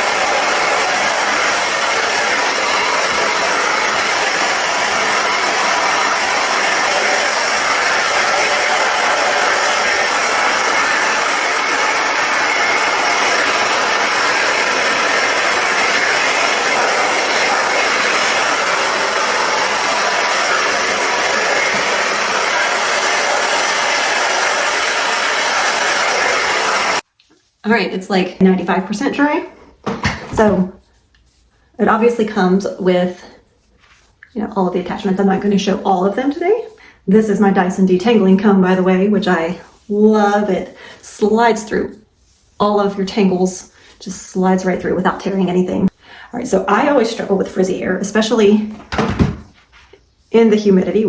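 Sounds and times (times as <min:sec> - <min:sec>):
faint high whine: 0:00.0 - 0:27.0
hair dryer air rush: 0:00.0 - 0:27.0.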